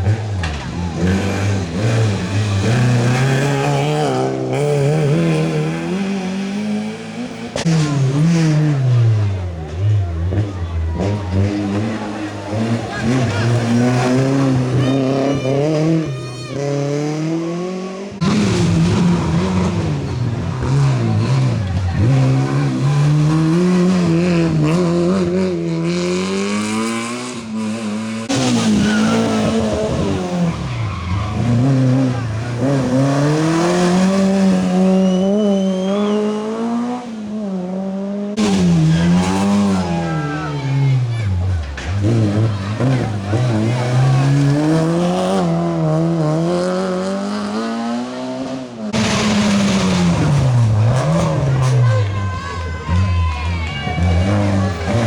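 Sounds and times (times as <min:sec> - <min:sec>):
rally car engine revving: 0:00.0 - 0:55.0
sharp crack: 0:48.9 - 0:51.8.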